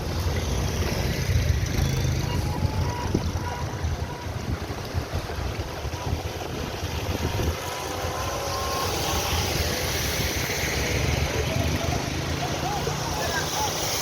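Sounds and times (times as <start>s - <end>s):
vehicle engines running: 0.0s - 14.0s
hiss of water: 6.8s - 14.0s.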